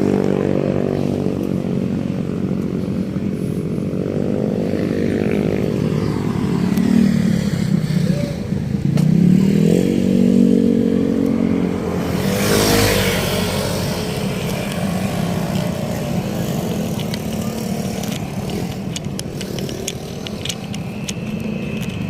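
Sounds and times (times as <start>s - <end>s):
road noise: 0.0s - 22.0s
vehicle engine humming: 0.0s - 22.0s
vehicle rushing past: 4.4s - 19.6s
small clicks: 14.4s - 22.0s.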